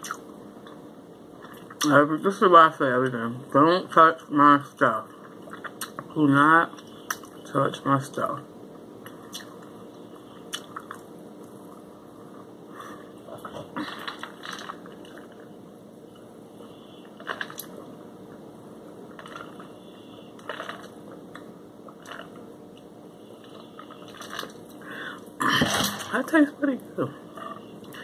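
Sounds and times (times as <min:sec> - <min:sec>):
wet mouth clicks: 0:00.0 - 0:00.2, 0:05.5 - 0:06.0, 0:09.3 - 0:09.6
chewing and crunching: 0:05.1 - 0:06.1, 0:10.3 - 0:12.5, 0:13.3 - 0:16.3, 0:19.1 - 0:19.8, 0:20.4 - 0:24.8.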